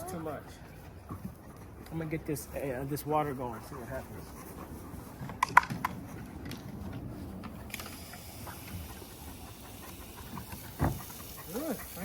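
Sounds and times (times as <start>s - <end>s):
water spraying hiss: 7.8s - 12.0s.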